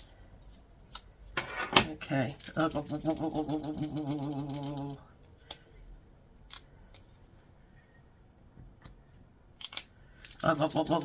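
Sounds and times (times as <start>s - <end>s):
paint pens clicking and tapping: 2.4s - 5.0s
drawn-out vocal sound: 2.5s - 5.2s, 10.3s - 11.0s.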